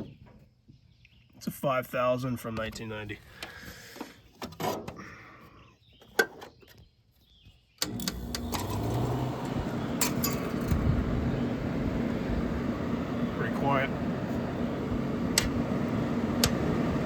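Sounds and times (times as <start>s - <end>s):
air conditioner humming: 7.8s - 17.0s.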